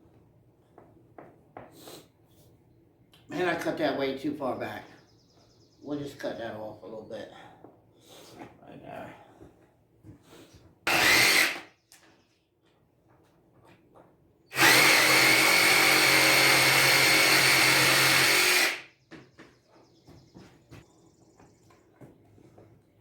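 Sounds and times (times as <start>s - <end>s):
power tool cutting with high whine: 10.9s - 11.7s, 14.5s - 18.9s.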